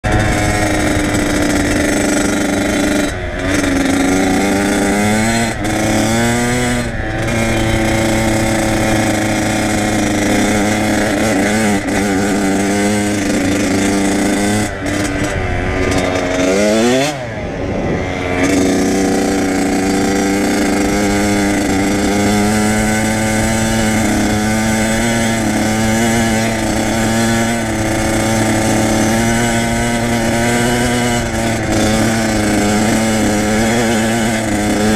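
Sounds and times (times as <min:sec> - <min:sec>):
dirt bike engine revving: 0:00.0 - 0:34.9.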